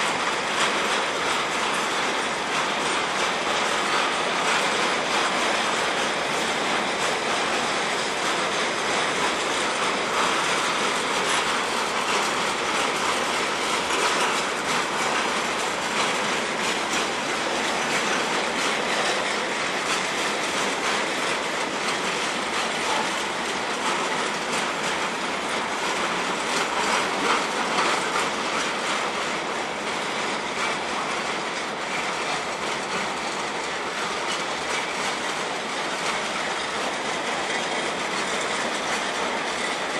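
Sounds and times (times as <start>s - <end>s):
train wheels rumbling on rail: 0.0s - 39.9s
wheels clicking over rail joints: 0.0s - 39.9s.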